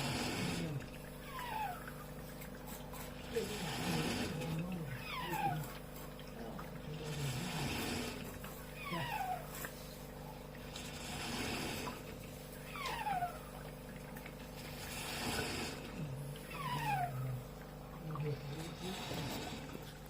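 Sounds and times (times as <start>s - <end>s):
coffee machine squealing: 0.0s - 6.2s, 7.0s - 10.0s
steady machine hum: 0.0s - 20.0s.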